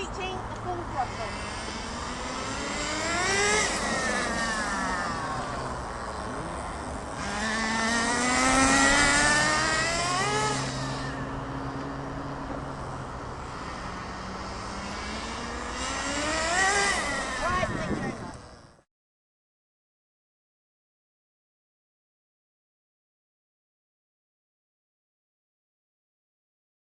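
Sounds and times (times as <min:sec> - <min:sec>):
small nitro engine buzzing: 0:00.0 - 0:18.9.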